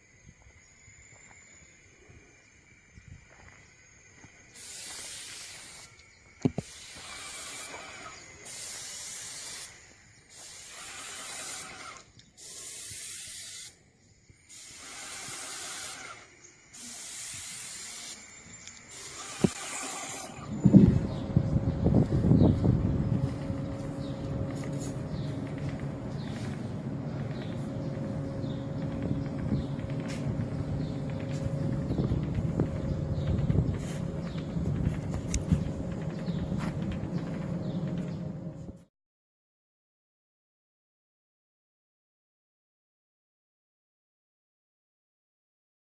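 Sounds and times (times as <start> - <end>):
spray nozzle hissing: 4.6 - 13.8, 14.5 - 20.4
low rumbling: 20.4 - 38.9.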